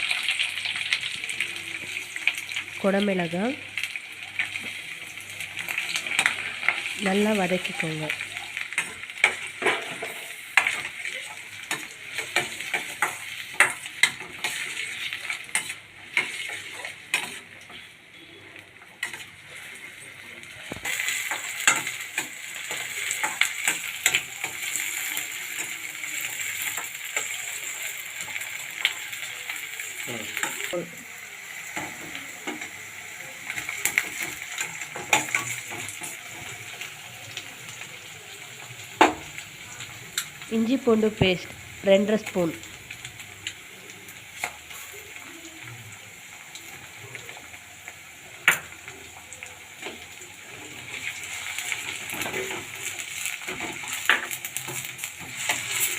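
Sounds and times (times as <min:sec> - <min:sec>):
vegetables sizzling in hot oil: 0:00.0 - 0:55.9
spatula scraping and tapping pan: 0:11.6 - 0:17.9.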